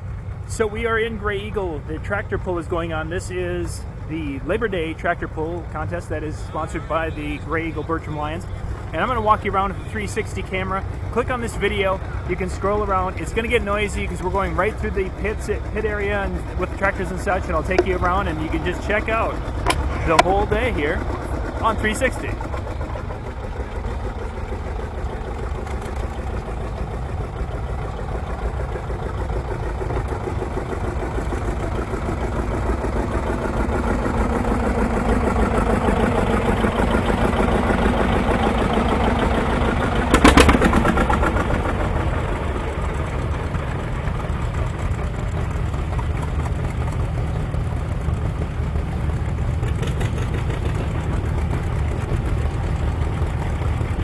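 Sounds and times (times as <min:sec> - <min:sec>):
tractor engines running: 0:00.0 - 0:54.0
loud engine burst: 0:39.8 - 0:41.6.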